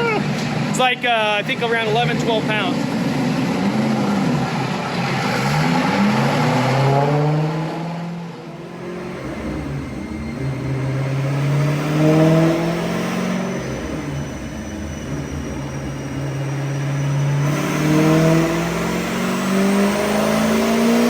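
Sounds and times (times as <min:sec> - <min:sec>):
car engine revving under load: 0:01.5 - 0:21.0.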